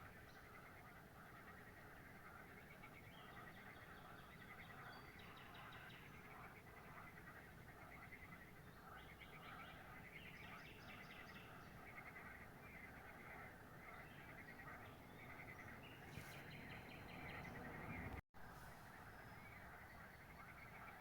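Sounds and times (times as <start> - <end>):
birds chirping: 8.8 - 18.2.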